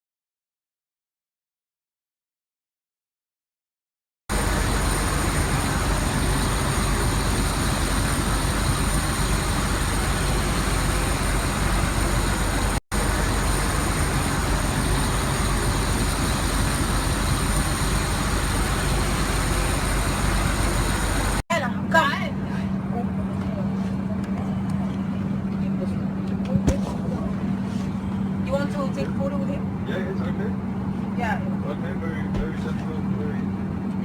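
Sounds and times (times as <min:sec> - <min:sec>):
loud rushing noise with rumble: 0:04.3 - 0:21.4.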